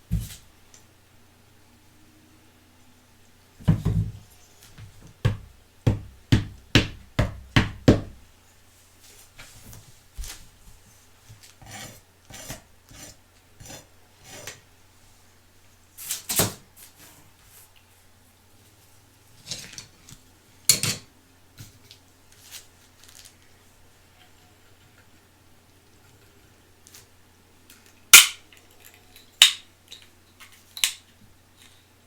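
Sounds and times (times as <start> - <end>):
hard objects knocking on a surface: 3.6 - 8.2.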